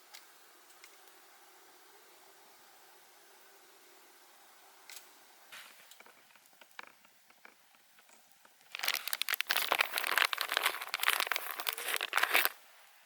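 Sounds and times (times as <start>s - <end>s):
paper wrapper crinkling: 8.6s - 12.6s.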